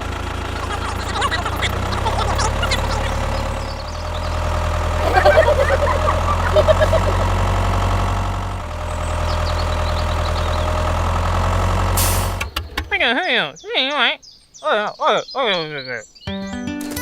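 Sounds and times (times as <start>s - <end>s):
small tractor engine idling: 0.0s - 12.8s.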